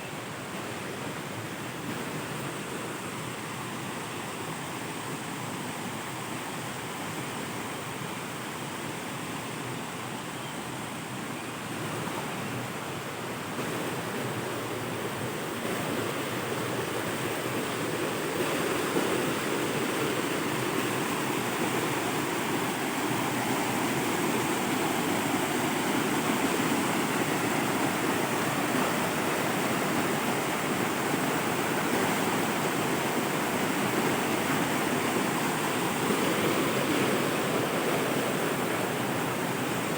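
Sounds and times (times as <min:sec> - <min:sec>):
waterfall rushing: 0:11.8 - 0:39.9.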